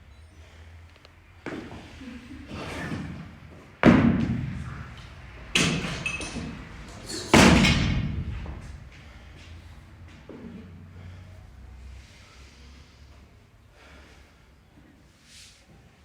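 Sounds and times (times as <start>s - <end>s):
weights thudding on gym floor: 5.6s - 8.8s.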